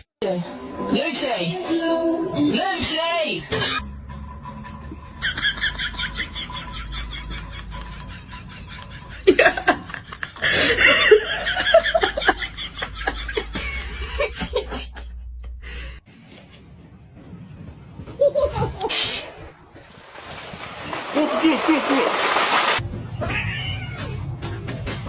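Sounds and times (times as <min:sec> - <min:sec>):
people laughing: 0:05.2 - 0:15.2, 0:18.2 - 0:19.0.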